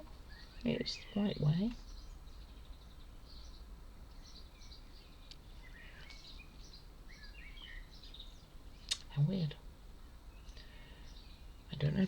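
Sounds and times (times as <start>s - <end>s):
small bird chirping: 0.0s - 9.6s, 10.3s - 12.0s
low steady hum: 0.0s - 12.0s
small click: 8.9s - 9.1s.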